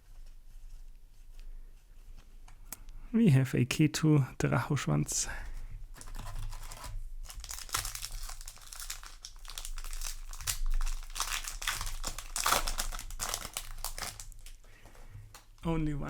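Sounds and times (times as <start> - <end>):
foil wrapper crinkling: 5.9 - 15.7.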